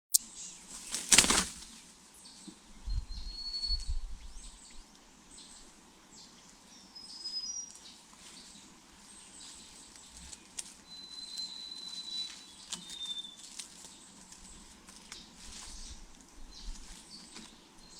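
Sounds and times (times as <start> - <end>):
small birds chirping: 0.1 - 17.9
bird wings fluttering: 0.6 - 1.9.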